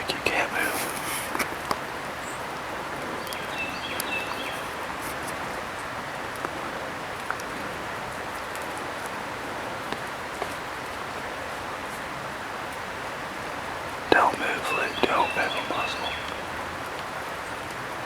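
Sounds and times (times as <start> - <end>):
water dripping ticks: 0.0 - 5.6, 6.2 - 9.2, 13.6 - 18.0
rain hiss in woods: 0.0 - 18.0.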